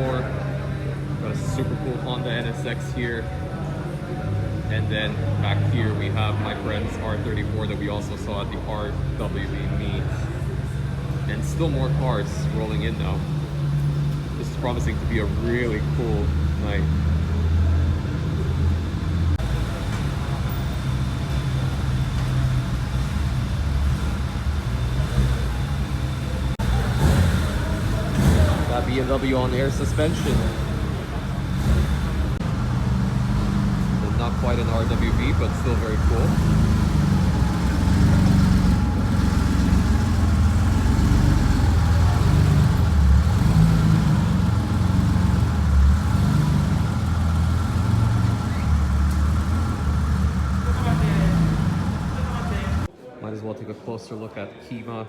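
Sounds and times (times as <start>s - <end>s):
car engines low rumble: 0.0s - 52.9s.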